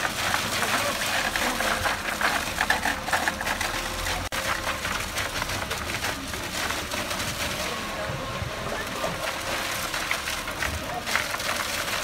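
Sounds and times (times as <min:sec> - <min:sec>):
construction machinery rattling motor: 0:00.0 - 0:12.0.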